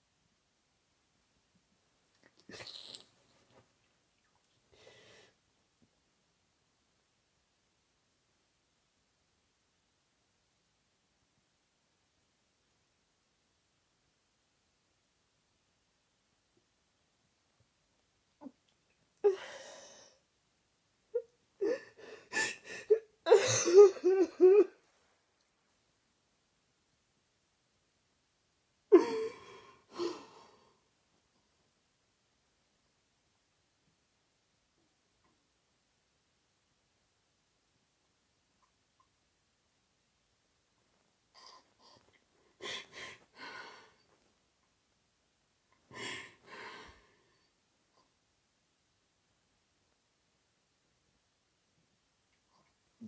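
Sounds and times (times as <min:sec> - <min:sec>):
person sobbing: 0:21.2 - 0:24.8, 0:28.9 - 0:30.6
person breathing and sniffing: 0:41.4 - 0:44.3.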